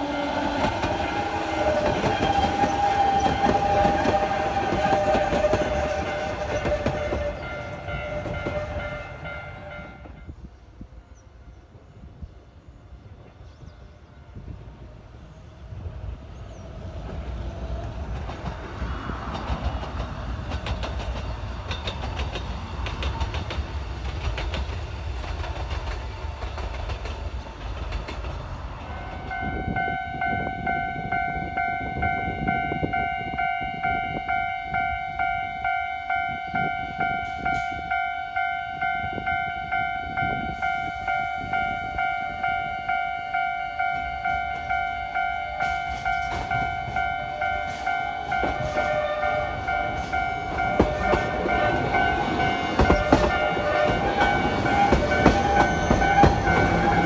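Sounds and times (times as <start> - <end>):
level crossing warning bell: 0.0 - 10.4, 28.8 - 57.0
electric train rumble and motor whine: 0.0 - 57.0
rail-joint clicks: 0.3 - 10.3, 17.0 - 35.4, 36.2 - 38.1, 38.8 - 57.0.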